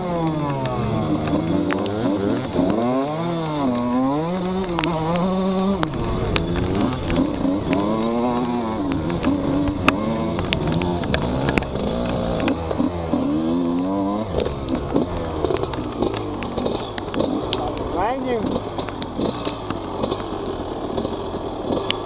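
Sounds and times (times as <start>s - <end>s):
dirt bike engines revving: 0.0s - 22.0s
sharp clicks: 3.6s - 22.0s.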